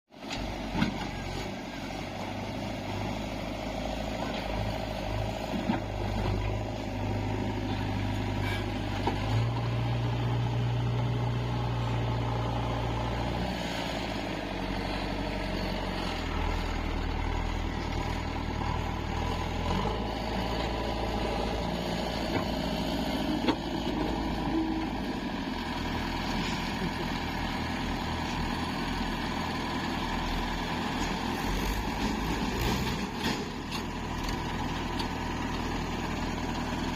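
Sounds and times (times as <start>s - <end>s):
diesel engines working: 0.2s - 36.9s.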